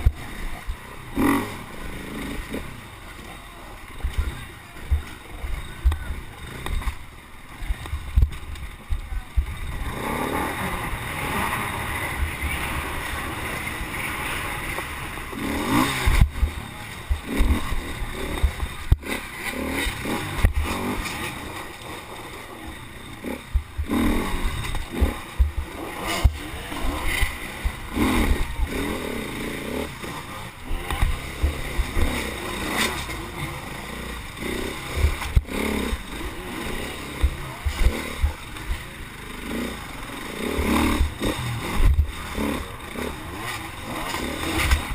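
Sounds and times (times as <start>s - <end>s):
low thumps: 7.6s - 9.9s, 23.5s - 28.7s, 40.6s - 42.4s.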